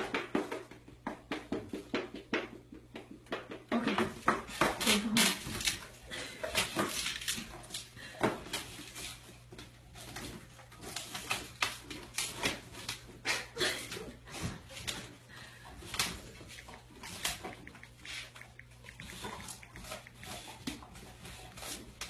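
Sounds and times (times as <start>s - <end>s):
dog chewing and tearing meat: 5.3s - 13.1s, 15.8s - 22.0s.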